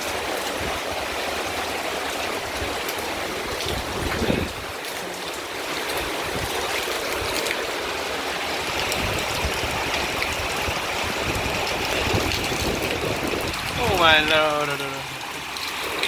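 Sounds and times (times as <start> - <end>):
heavy rain pouring: 0.0 - 16.0
running water: 0.0 - 16.0.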